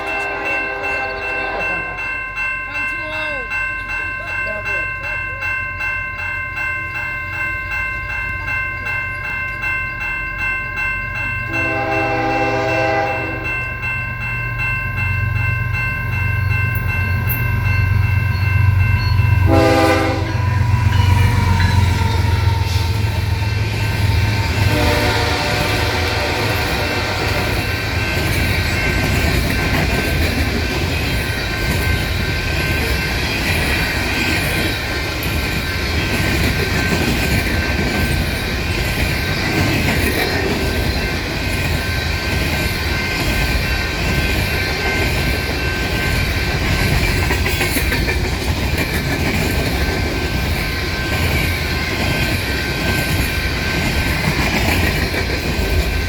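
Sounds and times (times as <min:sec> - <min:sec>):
freight train rolling past: 0:00.0 - 0:56.0
wheels clicking over rail joints: 0:23.6 - 0:56.0.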